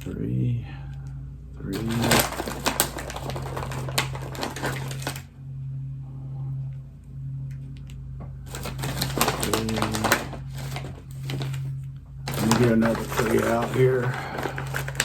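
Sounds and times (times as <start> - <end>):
steady low hum: 0.0 - 15.0
crunchy cookies clicking: 1.8 - 5.3, 8.5 - 15.0
plastic snack pouch crinkling: 1.8 - 5.3, 8.5 - 15.0.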